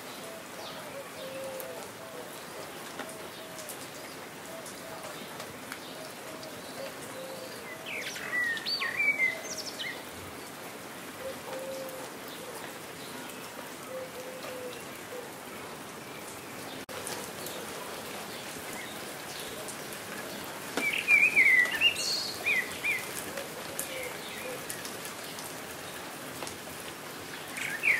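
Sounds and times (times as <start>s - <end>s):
steady rain falling: 0.0s - 27.9s
small birds chirping: 16.2s - 25.5s.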